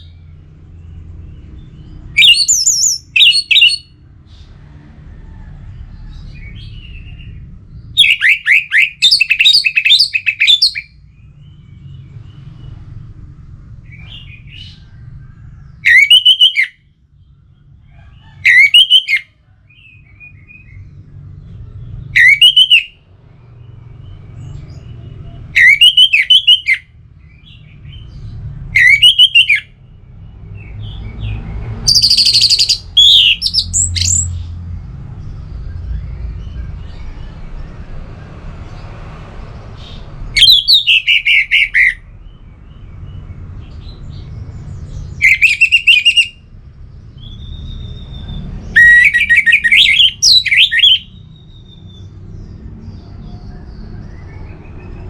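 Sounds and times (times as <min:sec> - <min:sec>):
low steady rumble: 0:00.0 - 0:15.9, 0:19.2 - 0:22.2, 0:22.8 - 0:55.0
thrush singing: 0:02.0 - 0:03.9, 0:08.0 - 0:10.9, 0:31.7 - 0:34.4, 0:40.3 - 0:42.0, 0:45.2 - 0:46.4.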